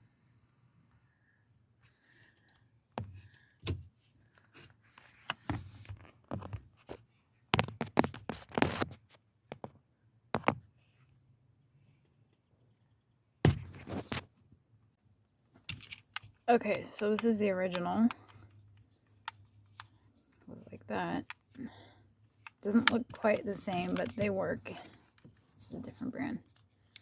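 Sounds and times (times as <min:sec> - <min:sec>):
plastic parts clicking and scraping: 0:03.0 - 0:09.7, 0:15.6 - 0:27.0.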